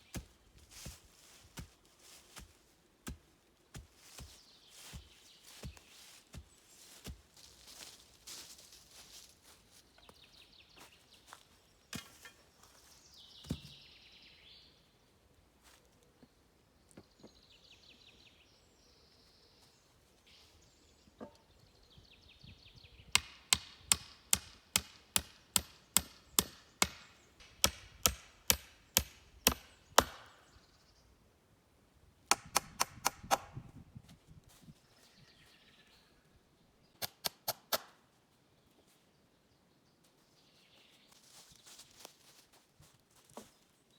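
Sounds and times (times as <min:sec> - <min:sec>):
hand tool striking wood: 0:12.0 - 0:12.4, 0:13.4 - 0:13.7, 0:23.1 - 0:30.4, 0:32.3 - 0:33.6.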